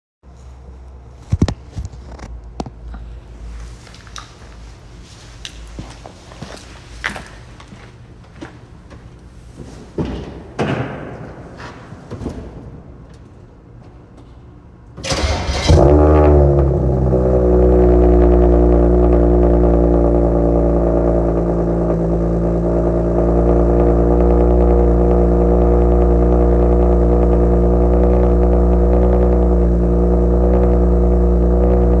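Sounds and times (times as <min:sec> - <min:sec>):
engine cranking and starting: 0:15.0 - 0:17.0
loud engine idle: 0:15.0 - 0:32.0.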